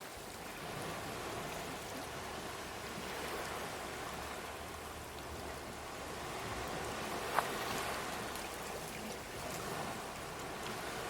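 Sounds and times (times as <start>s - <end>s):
sea water washing over rocks: 0.0s - 11.0s.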